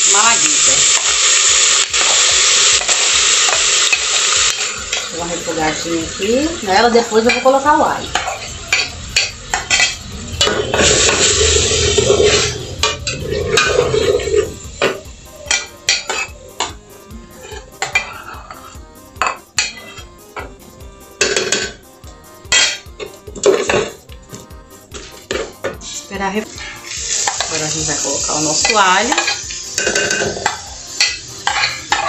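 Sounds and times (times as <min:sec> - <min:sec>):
vegetables sauteing: 0:00.0 - 0:32.0
utensil scraping and clinking pan: 0:07.2 - 0:16.3, 0:17.4 - 0:20.1, 0:28.6 - 0:32.0.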